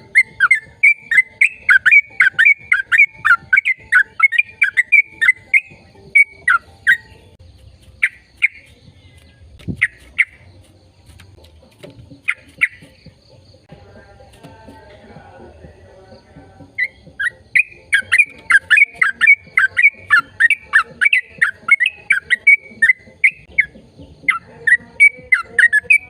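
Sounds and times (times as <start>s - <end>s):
bird calling sharp falling notes: 0.0s - 7.3s, 16.8s - 26.0s.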